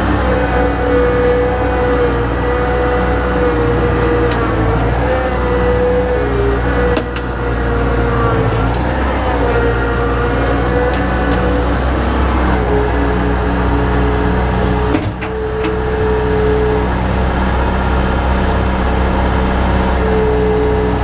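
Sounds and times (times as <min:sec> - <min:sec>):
diesel engine running with whine: 0:00.0 - 0:21.0.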